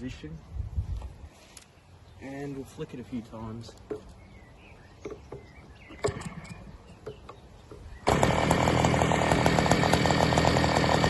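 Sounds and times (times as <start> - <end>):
model plane engine running: 8.0 - 11.0.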